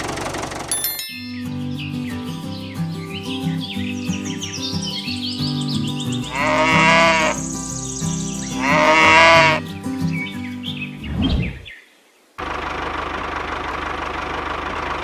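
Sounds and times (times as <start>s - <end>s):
background music with held notes: 0.8s - 11.0s
animal bleats: 6.2s - 7.6s, 8.5s - 9.7s.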